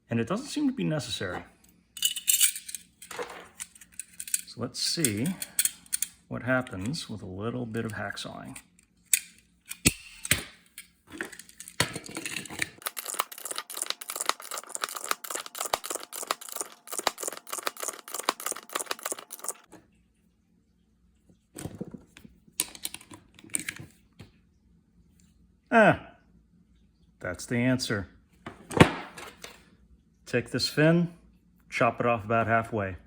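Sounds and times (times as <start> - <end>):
hacksaw cutting plastic: 12.7 - 19.7.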